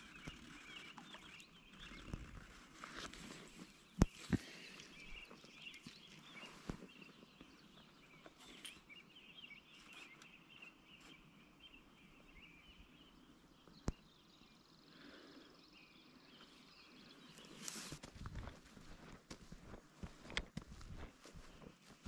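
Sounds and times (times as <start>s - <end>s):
rustling noise: 0.0s - 4.4s, 17.4s - 22.0s
birds chirping and twittering: 0.0s - 22.0s.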